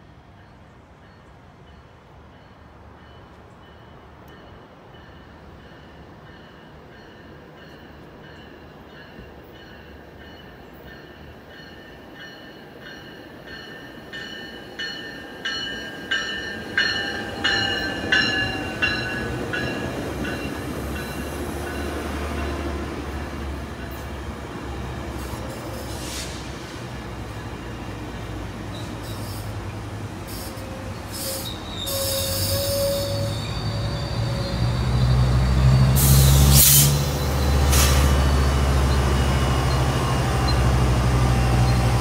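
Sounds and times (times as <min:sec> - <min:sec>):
train cars rumbling by: 0:00.0 - 0:42.0
train bell ringing: 0:00.4 - 0:24.3, 0:37.0 - 0:40.8.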